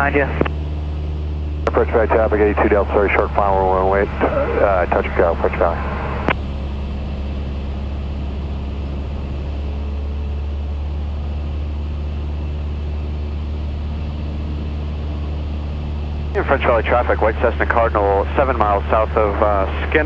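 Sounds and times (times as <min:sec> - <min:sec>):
airplane engine droning in flight: 0:00.0 - 0:20.0
radio click: 0:04.1 - 0:06.4.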